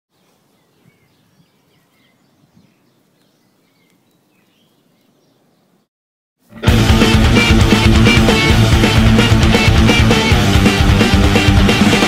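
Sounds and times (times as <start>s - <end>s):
birds chirping: 0.1s - 5.9s.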